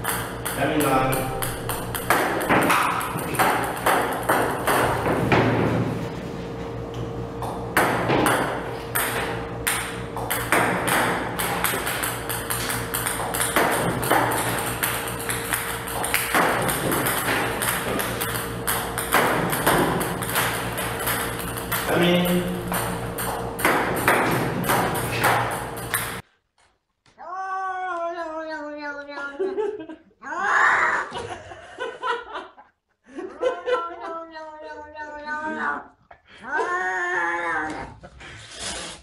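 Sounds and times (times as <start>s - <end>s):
table tennis balls bouncing: 0.0s - 6.2s, 6.9s - 26.2s
low hum: 0.0s - 26.2s.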